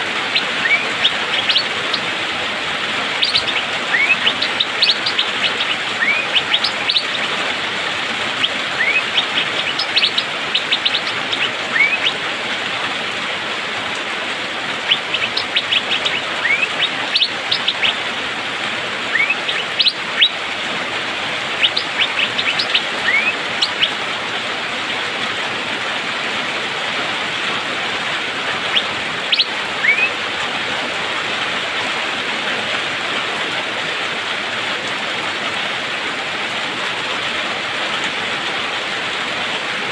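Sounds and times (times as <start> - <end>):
bird whistled calls and ticks: 0.2 - 12.3, 14.8 - 18.0, 19.1 - 20.4, 21.5 - 24.0, 28.6 - 30.2.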